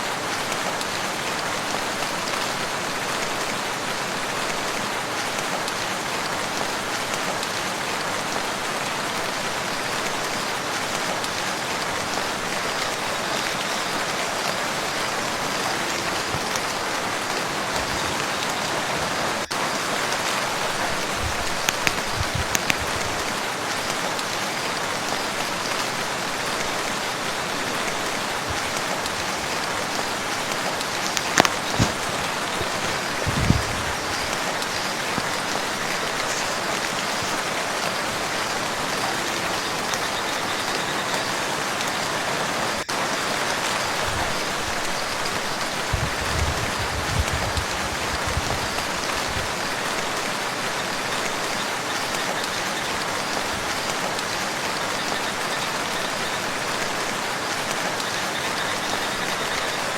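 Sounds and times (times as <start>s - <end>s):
rain falling on a lake: 0.0s - 59.9s.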